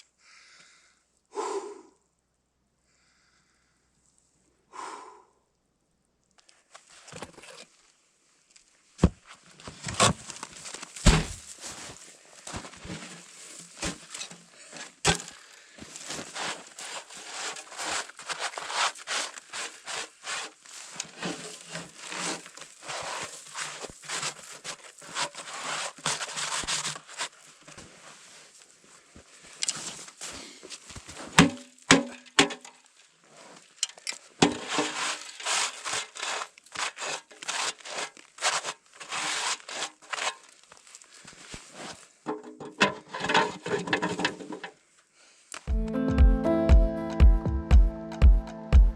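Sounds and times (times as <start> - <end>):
crunching and rustling: 8.5 - 32.0, 32.7 - 42.2.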